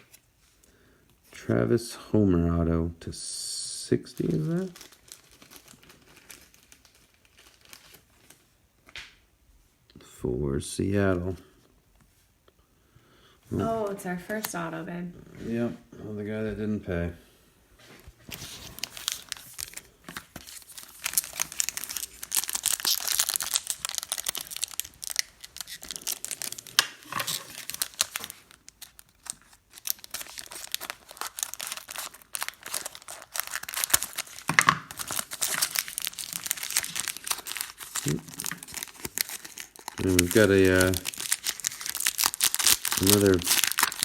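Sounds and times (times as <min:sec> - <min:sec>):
card pack wrappers crinkling and tearing: 0:04.0 - 0:08.4, 0:18.2 - 0:44.0.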